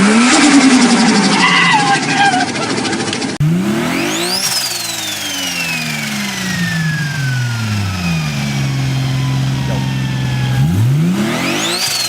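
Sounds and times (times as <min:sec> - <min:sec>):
car engine revving and idling: 0:00.0 - 0:01.4, 0:03.4 - 0:12.0
turbo whine: 0:03.4 - 0:12.0.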